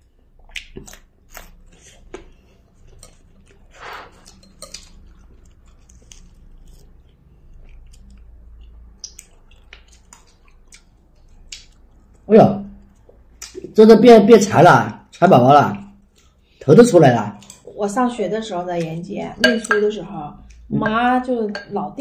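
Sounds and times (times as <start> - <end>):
chewing and crunching food: 0.0 - 13.8, 14.9 - 19.7.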